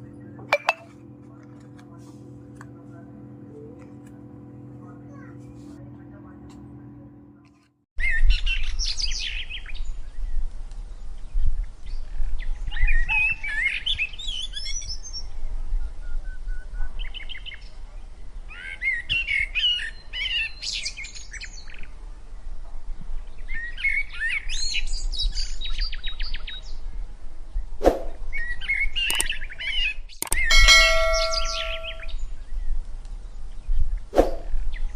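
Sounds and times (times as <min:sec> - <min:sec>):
sharp click: 0:29.1 - 0:29.3, 0:30.2 - 0:32.1.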